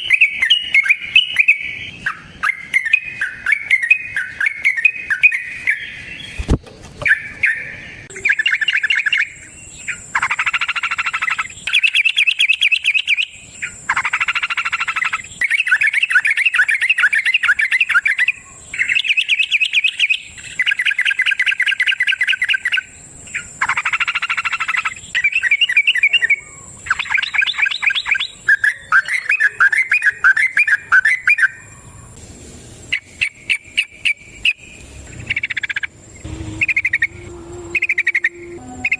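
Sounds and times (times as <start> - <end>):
bulbul chattering song: 0.0 - 6.3, 7.0 - 32.0, 32.9 - 38.9
thin steady high tone: 35.5 - 38.9.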